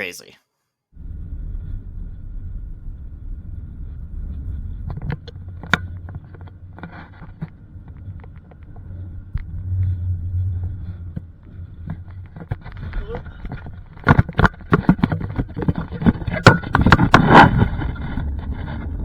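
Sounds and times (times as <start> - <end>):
car rumbling on dirt road: 1.0 - 19.0
knocks and rattles: 10.5 - 19.0.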